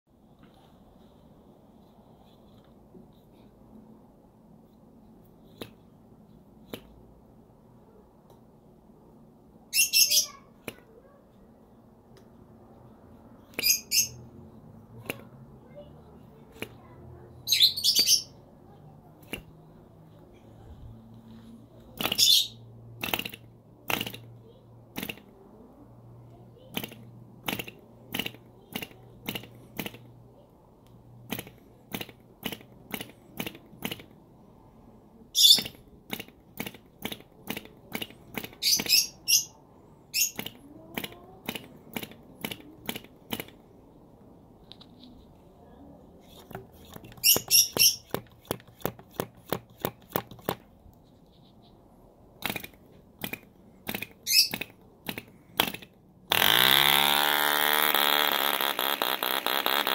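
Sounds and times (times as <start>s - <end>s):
model engine propeller clicks: 23.0s - 25.4s, 26.7s - 30.1s, 31.2s - 34.2s, 35.6s - 38.9s, 40.3s - 43.6s, 46.4s - 50.7s, 52.4s - 59.9s.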